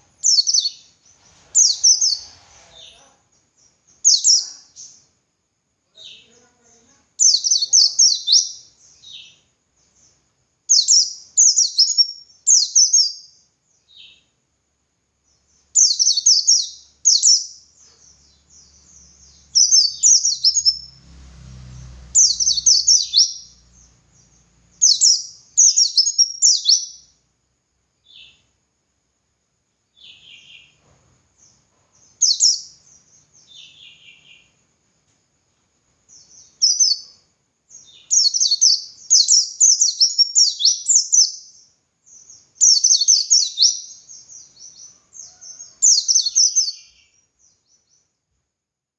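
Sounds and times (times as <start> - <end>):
bird high chirping song: 0.0 - 5.2, 5.9 - 14.4, 15.2 - 27.2, 28.0 - 28.6, 29.9 - 34.6, 36.0 - 48.2
faint low rumble: 18.0 - 25.6.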